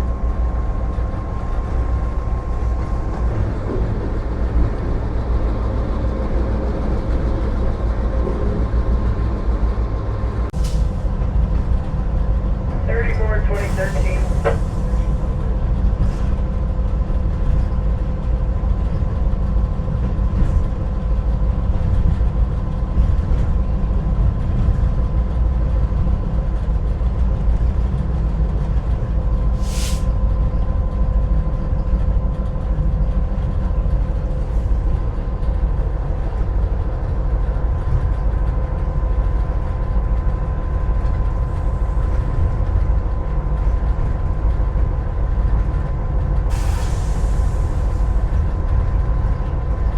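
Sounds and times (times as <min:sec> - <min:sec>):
diesel locomotive engine rumble: 0:00.0 - 0:49.9
short air hiss: 0:29.6 - 0:30.1, 0:46.5 - 0:47.9.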